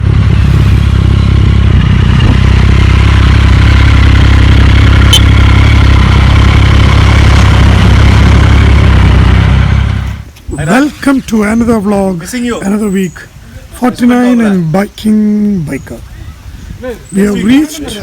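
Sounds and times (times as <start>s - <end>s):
motorcycle engine running: 0.0s - 10.3s.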